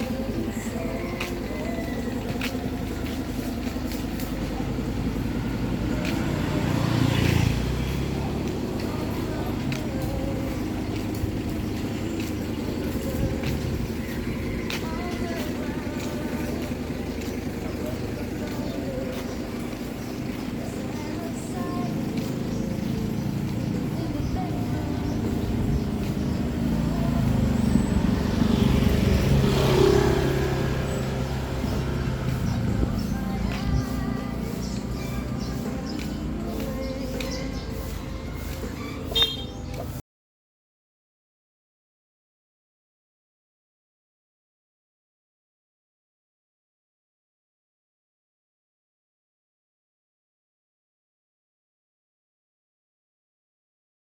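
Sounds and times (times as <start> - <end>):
motor vehicle passing: 0.0 - 40.0
street noise: 0.0 - 40.0.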